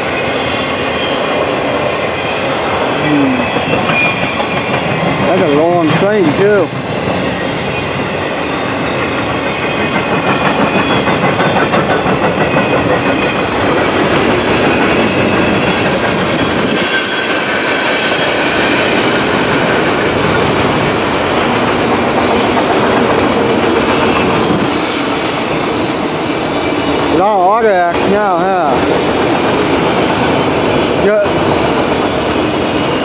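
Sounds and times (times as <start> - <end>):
freight train wheels rumbling: 0.0 - 33.0
wheels clickety-clack on rail joints: 0.0 - 33.0.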